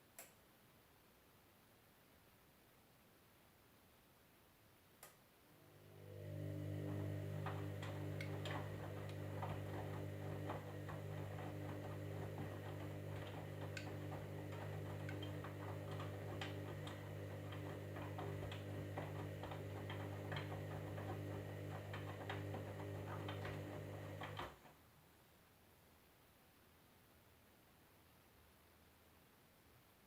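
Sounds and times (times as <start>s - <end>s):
washing machine motor hum: 5.6s - 24.7s.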